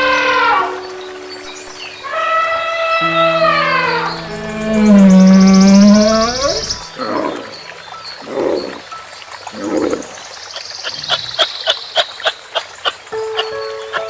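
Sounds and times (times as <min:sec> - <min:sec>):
rough animal calls: 0:01.6 - 0:07.6.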